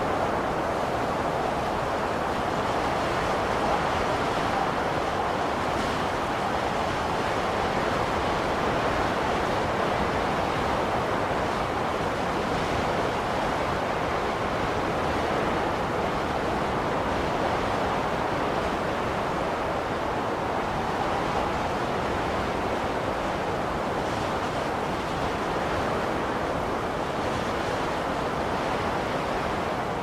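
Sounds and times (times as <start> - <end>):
blizzard wind blowing: 0.0 - 30.0.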